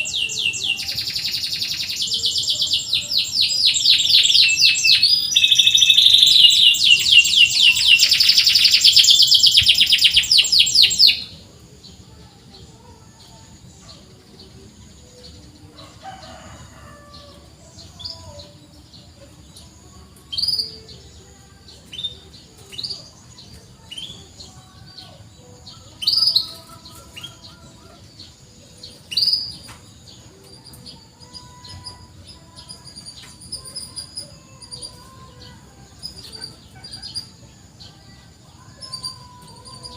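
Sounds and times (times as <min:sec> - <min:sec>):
canary chirps: 0:00.0 - 0:11.4, 0:12.3 - 0:39.9
canary trilling: 0:00.0 - 0:11.4, 0:15.8 - 0:18.4.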